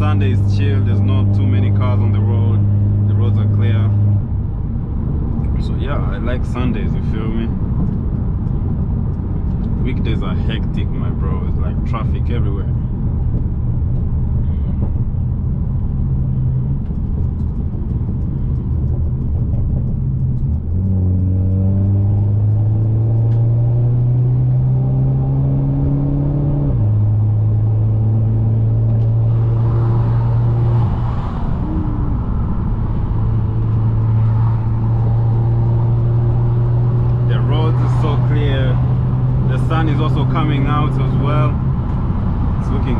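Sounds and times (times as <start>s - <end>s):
road noise: 0.0s - 42.9s
car engine accelerating: 15.0s - 42.9s.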